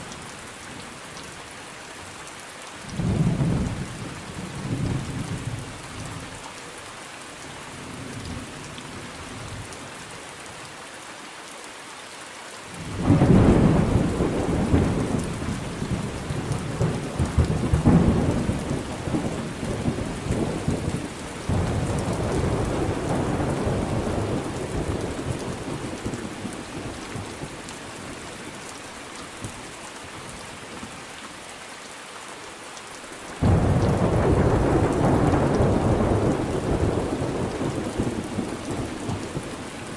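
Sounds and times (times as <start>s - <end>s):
steady rain: 0.0s - 39.9s
thunder rumbling: 12.9s - 27.6s, 33.4s - 39.5s.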